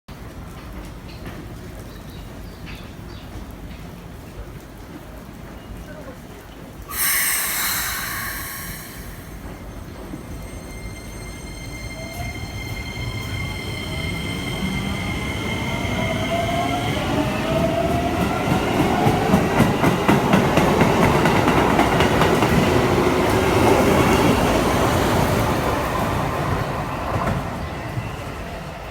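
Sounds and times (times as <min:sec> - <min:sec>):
wheels clattering on rails: 0:00.1 - 0:06.9
burst of air hiss: 0:06.9 - 0:09.5
steady high tones: 0:06.9 - 0:14.5.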